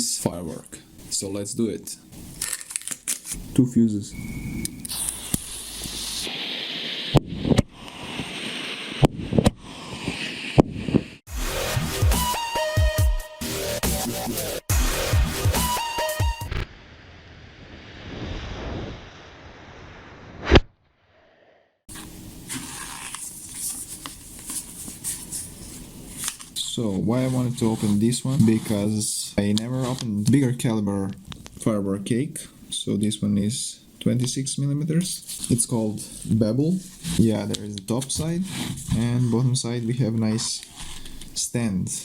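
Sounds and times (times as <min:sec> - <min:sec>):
steady hiss: 0:03.4 - 0:11.2
loud bang: 0:16.5 - 0:21.7
rising whoosh: 0:16.5 - 0:21.8.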